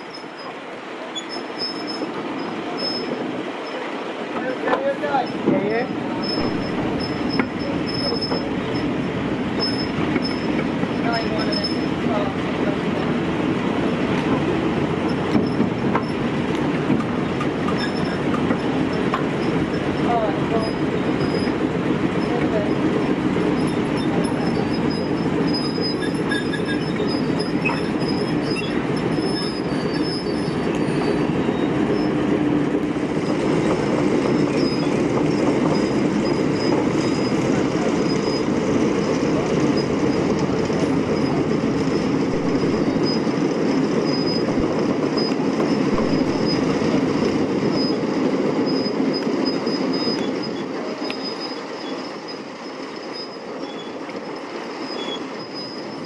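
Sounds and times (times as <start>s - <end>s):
high wheel squeal: 0.0s - 3.9s, 6.1s - 12.0s, 17.7s - 22.8s, 23.4s - 32.4s, 33.2s - 56.0s
locomotive engine humming: 0.0s - 56.0s.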